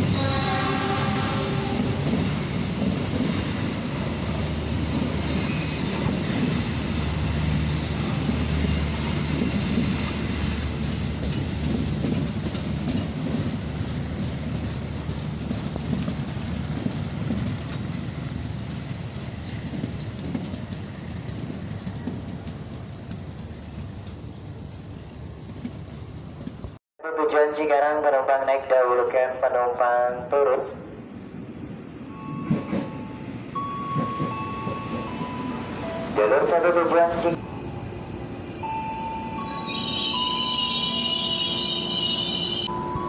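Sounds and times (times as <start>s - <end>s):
train wheels clattering over rail joints: 8.2s - 26.8s.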